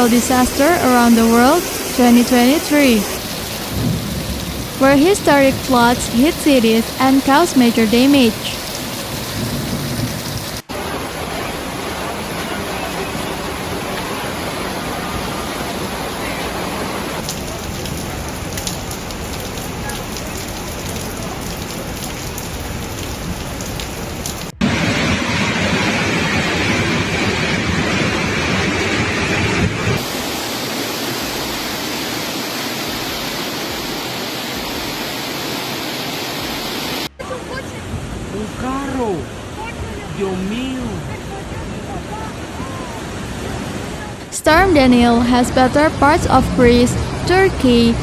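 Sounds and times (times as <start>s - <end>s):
floodwater rushing: 0.0s - 48.0s.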